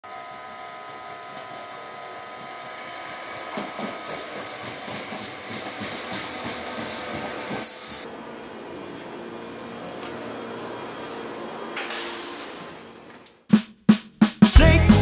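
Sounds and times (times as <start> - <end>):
train wheels knocking on rail joints: 3.2 - 7.7
burst of hiss: 11.8 - 12.8.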